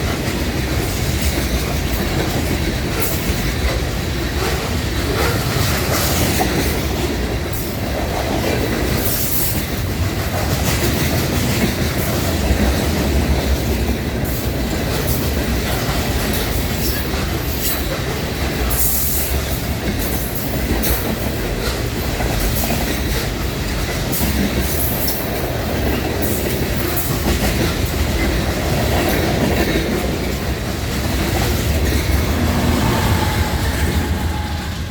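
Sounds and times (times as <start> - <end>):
wheels clacking over rail joints: 0.0 - 34.9
freight cars rumbling past: 29.9 - 34.9
high wheel squeals: 32.1 - 34.9.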